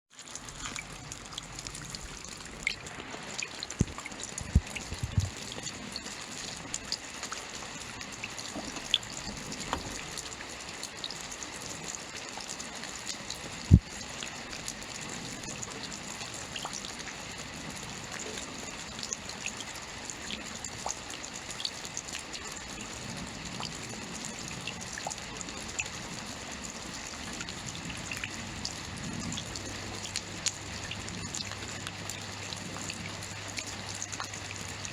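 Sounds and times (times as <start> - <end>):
raindrops ticking on a surface: 0.1 - 34.9
rainfall hiss: 0.2 - 34.9
heavy drip impacts: 0.3 - 5.7, 8.2 - 10.3.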